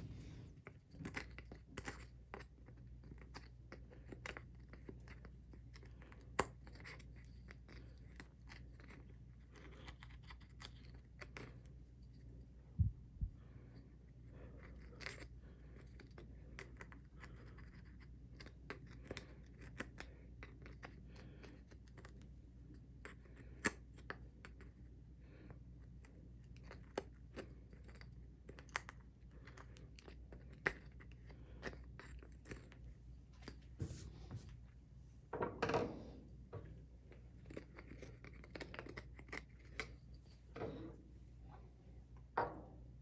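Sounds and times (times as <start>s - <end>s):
steady low hum: 0.0s - 2.4s, 11.6s - 18.2s, 29.1s - 43.0s.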